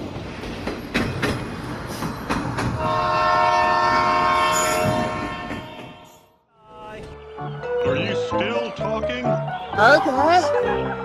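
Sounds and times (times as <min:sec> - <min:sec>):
train clacking over rail joints: 0:00.0 - 0:06.2
train horn: 0:02.8 - 0:06.3.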